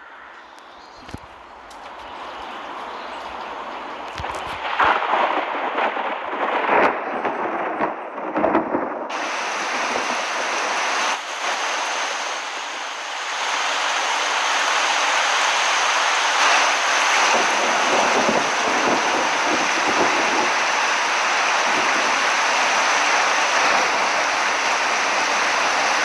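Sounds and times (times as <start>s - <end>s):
wind: 0.0s - 26.0s
heavy rain: 1.0s - 26.0s.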